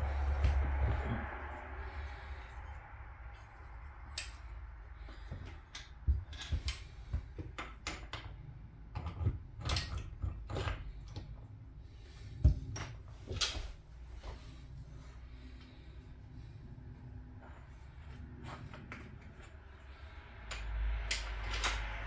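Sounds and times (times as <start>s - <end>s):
metal parts and tools clinking: 2.0s - 11.4s, 12.6s - 13.8s, 18.0s - 22.0s.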